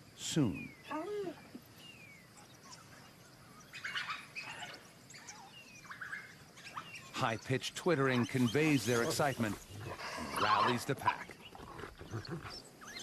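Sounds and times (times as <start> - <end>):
wild dogs twittering: 0.4 - 13.0.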